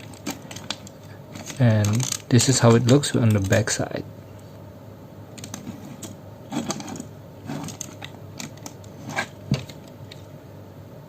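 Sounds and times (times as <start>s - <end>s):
plastic model parts clicking: 0.0s - 3.7s.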